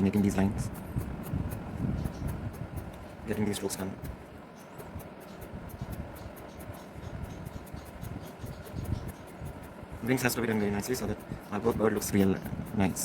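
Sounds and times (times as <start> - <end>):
pencil scratching on paper: 0.0 - 13.0.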